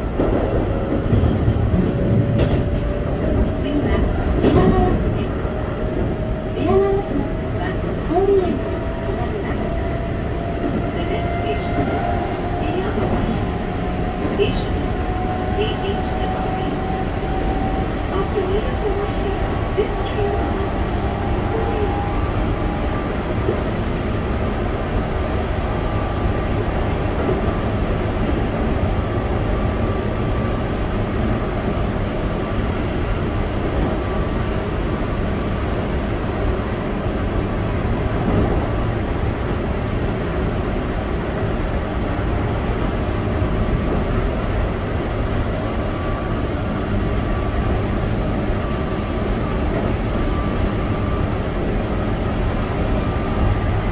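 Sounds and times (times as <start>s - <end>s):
train wheels rumbling: 0.0s - 53.9s.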